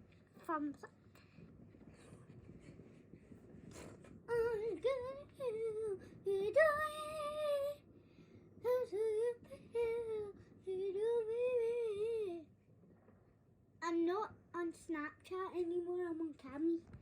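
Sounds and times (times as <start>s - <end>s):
child singing wordlessly: 4.2s - 7.8s, 8.6s - 12.5s, 13.8s - 17.0s.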